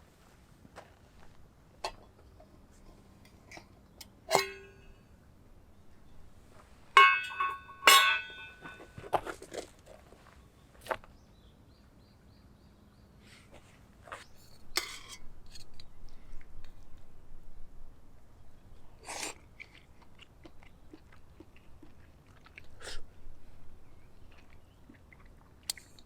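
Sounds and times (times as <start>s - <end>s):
tableware clinking: 4.3s - 5.0s, 7.0s - 9.2s
soft handling noise: 6.4s - 11.2s.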